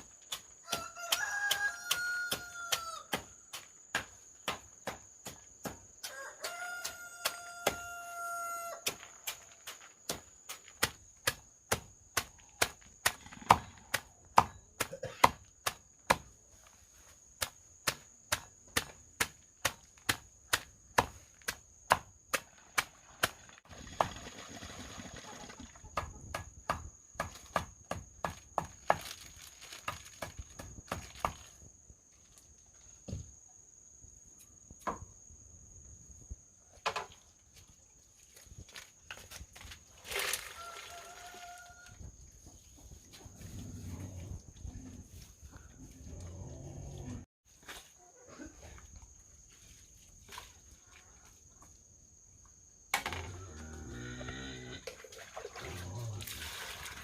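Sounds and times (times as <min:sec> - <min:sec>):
rooster crowing: 0:00.6 - 0:03.2, 0:06.0 - 0:08.9, 0:40.4 - 0:42.0.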